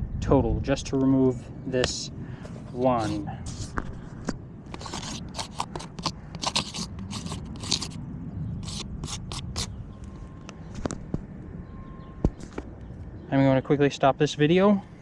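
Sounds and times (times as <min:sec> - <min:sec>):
scraping on asphalt shingles: 0:02.4 - 0:08.0, 0:08.6 - 0:09.7.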